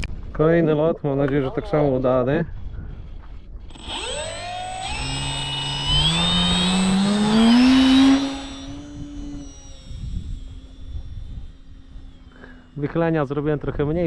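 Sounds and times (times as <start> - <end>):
electric motor and propeller whine: 3.6 - 14.0.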